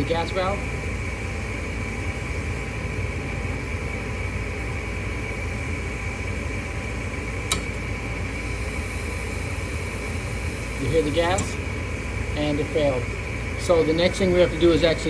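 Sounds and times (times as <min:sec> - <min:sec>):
furnace vent motor humming: 0:00.0 - 0:15.0
gas valve click: 0:07.5 - 0:07.8, 0:11.2 - 0:11.6.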